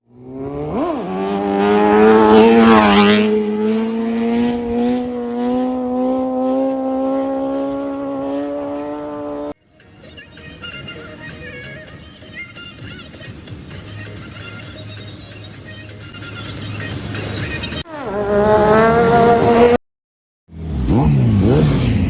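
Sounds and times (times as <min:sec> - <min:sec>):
superbike engine at high revs: 0:00.0 - 0:09.6, 0:17.9 - 0:19.8, 0:20.5 - 0:22.0
second engine passing: 0:00.1 - 0:09.6, 0:16.7 - 0:19.8, 0:20.5 - 0:22.0
music: 0:09.6 - 0:17.9.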